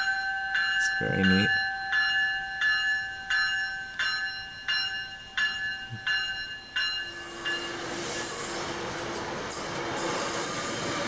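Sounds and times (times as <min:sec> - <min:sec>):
railroad bell ringing: 0:00.0 - 0:11.0
passing train rushing: 0:06.8 - 0:11.0.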